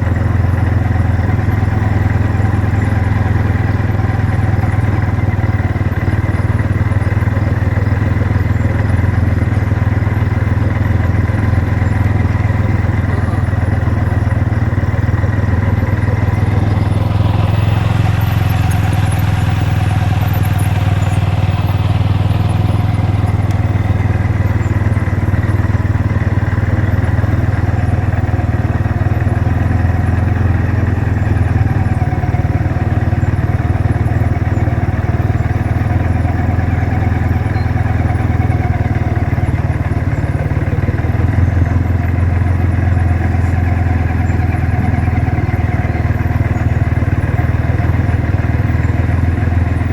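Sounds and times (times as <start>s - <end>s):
car engine idling: 0.0s - 49.9s.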